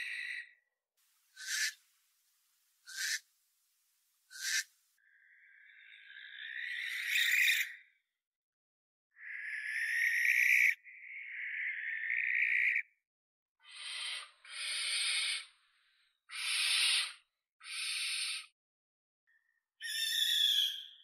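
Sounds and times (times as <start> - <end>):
owl calling harshly: 1.3 - 1.8, 2.8 - 3.3, 4.3 - 5.3, 6.2 - 7.8, 13.6 - 15.5, 16.3 - 18.5, 19.8 - 21.0.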